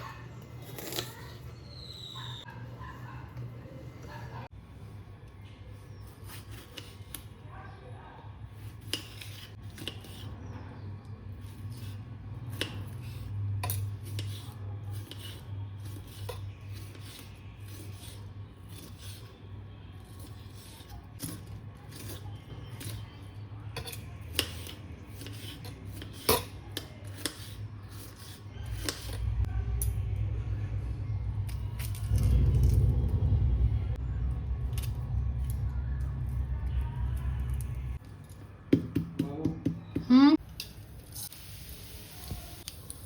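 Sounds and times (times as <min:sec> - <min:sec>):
kitchen utensils clinking and scraping: 0:08.5 - 0:30.0
steady low hum: 0:28.5 - 0:38.0.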